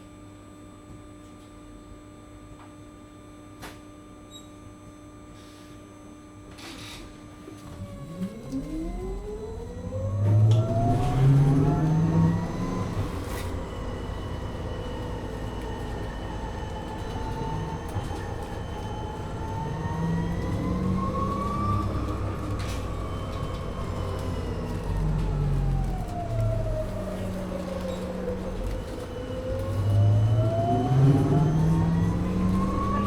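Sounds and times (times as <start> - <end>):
electric drive whine rising: 8.3 - 33.0
diesel engine rumble: 10.2 - 33.0.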